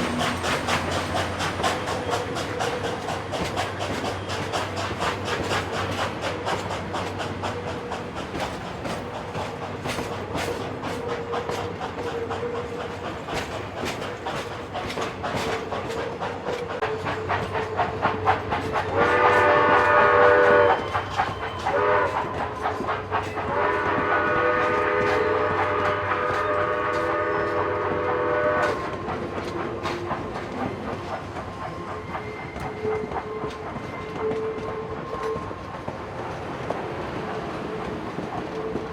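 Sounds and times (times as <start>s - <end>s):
train wheels clicking over rails: 0.0s - 38.9s
locomotive chord whistle: 18.9s - 22.4s, 23.4s - 29.4s.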